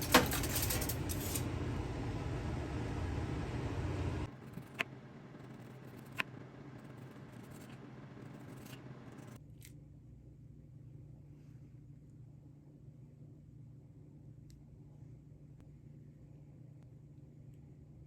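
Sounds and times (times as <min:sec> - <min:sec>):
clicks and scrapes of kitchen prep: 0:00.0 - 0:01.5.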